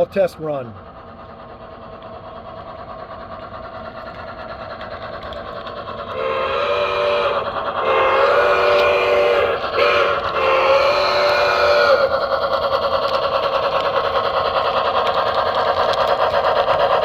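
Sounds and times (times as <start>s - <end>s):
model train running noise: 0.0s - 17.0s
steam whistle chord: 6.1s - 12.1s.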